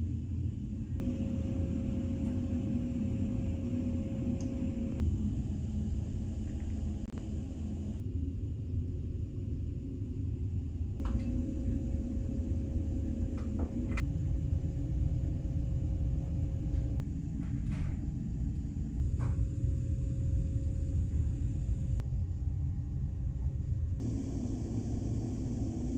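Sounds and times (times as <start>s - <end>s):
faint steady hum: 0.0s - 25.9s
ship engines rumbling: 0.9s - 8.0s.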